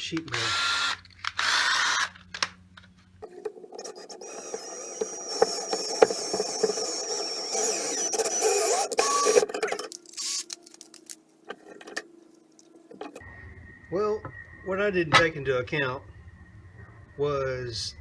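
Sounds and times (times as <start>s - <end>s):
drill motor running: 0.3s - 2.2s, 3.2s - 10.5s
thread tap grinding metal: 3.2s - 10.5s.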